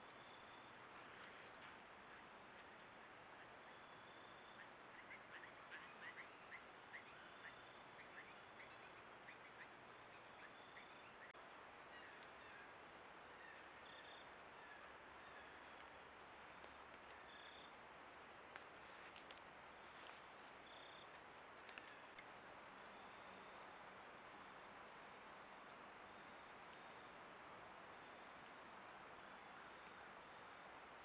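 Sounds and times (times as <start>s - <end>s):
microphone hiss: 0.0s - 31.0s
faint bird chirps: 2.1s - 12.7s, 13.3s - 17.8s
faint ticks: 21.0s - 22.4s.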